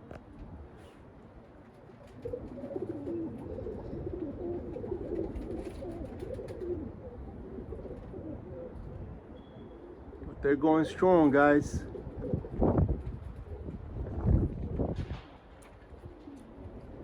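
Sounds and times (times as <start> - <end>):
pigeons cooing: 1.8 - 17.0
wind rumble on microphone: 3.4 - 9.3, 10.0 - 10.7, 11.4 - 17.0.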